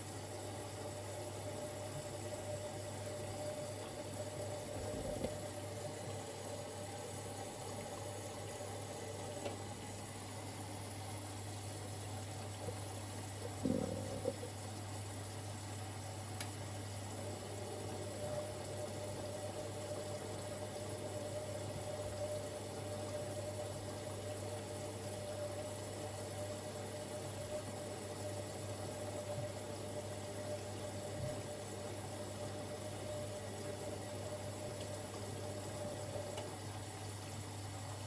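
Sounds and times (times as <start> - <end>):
washing machine low hum: 0.0 - 38.0
water rushing into washing machine: 0.0 - 38.0.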